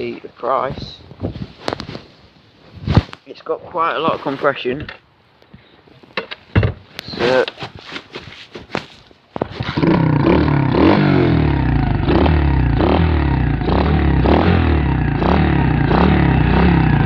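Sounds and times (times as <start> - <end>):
motorbike engine starting and revving: 9.6 - 17.0.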